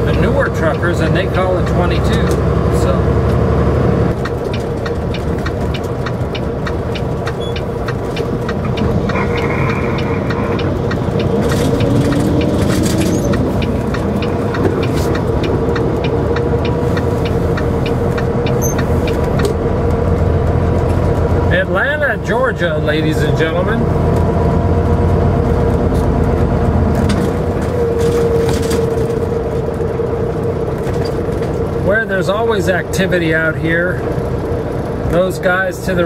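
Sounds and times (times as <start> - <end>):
truck engine and road rumble: 0.0 - 36.0
constant hum: 4.0 - 36.0
light ticks: 4.2 - 20.0.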